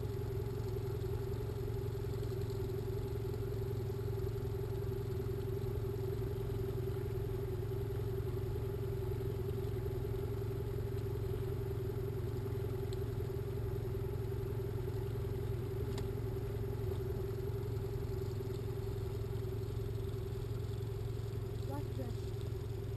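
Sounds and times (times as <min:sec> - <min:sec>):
boat engine humming: 0:00.0 - 0:22.9.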